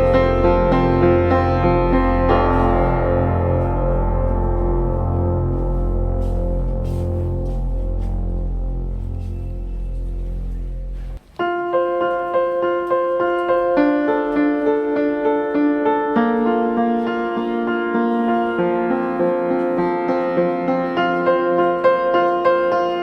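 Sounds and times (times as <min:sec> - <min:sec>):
low sustained music: 0:00.0 - 0:11.8
piano melody: 0:00.0 - 0:23.0.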